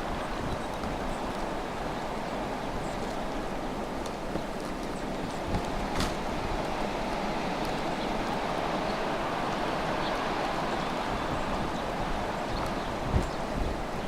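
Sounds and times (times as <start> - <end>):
snowstorm wind: 0.0 - 14.0.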